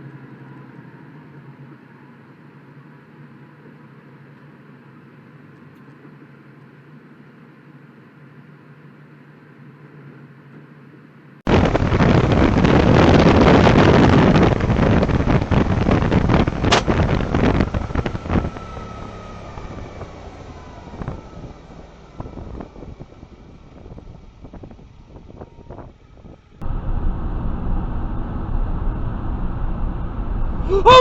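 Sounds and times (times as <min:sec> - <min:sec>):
faint falling whine: 0:01.5 - 0:31.0
loud rushing wind on microphone: 0:11.5 - 0:31.0.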